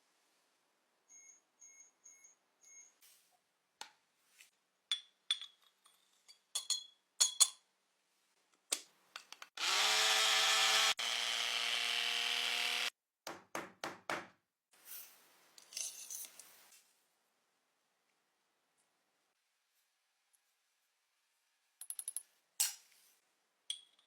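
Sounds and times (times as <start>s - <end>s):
small electric motor whirring: 9.6s - 12.9s.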